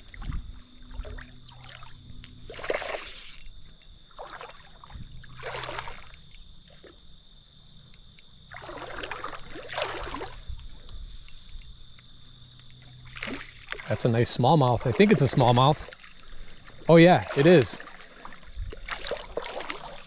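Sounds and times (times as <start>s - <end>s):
fish thrashing and splashing: 0.0s - 3.5s, 4.1s - 6.2s, 8.5s - 10.5s, 13.0s - 14.0s, 14.7s - 20.0s.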